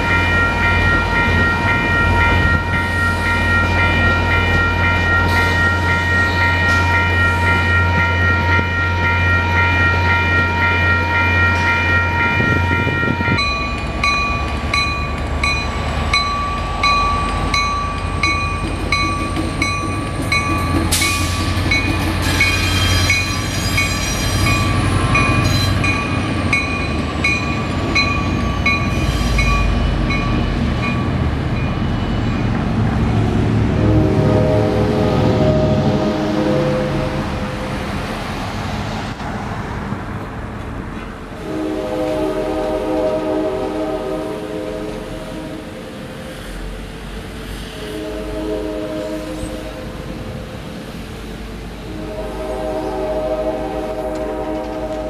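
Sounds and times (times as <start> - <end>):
locomotive horn: 0.0 - 14.6, 33.1 - 38.3, 41.3 - 46.0, 47.8 - 50.6, 51.2 - 55.0
train horn tones: 0.0 - 14.7, 33.0 - 38.4, 41.2 - 55.0
crossing bell ringing: 0.0 - 32.8
diesel locomotive pulling out: 0.0 - 55.0
rumble of train cars: 0.0 - 55.0.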